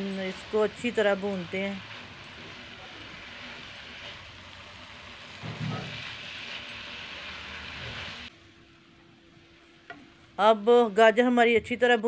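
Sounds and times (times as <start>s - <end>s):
food sizzling while stirred: 0.0s - 8.4s.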